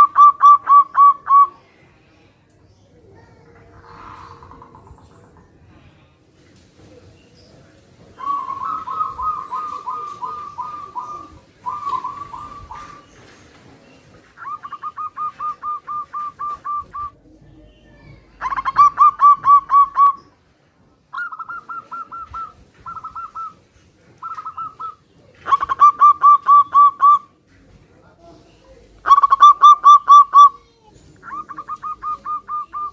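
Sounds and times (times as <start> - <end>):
doves cooing: 0.0 - 1.6, 3.4 - 5.8, 8.2 - 17.4, 18.3 - 20.4, 21.1 - 27.4, 29.0 - 30.6, 31.2 - 32.9.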